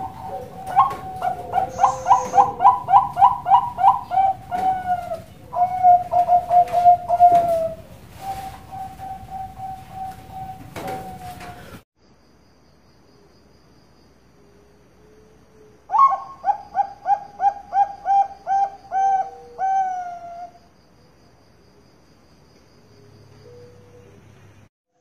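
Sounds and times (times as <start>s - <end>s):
dove cooing: 0.0s - 11.8s, 15.9s - 20.6s.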